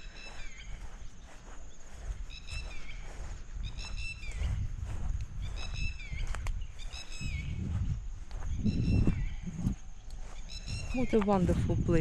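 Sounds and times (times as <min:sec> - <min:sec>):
bird calling: 0:00.0 - 0:04.6, 0:05.4 - 0:07.6, 0:08.5 - 0:11.3.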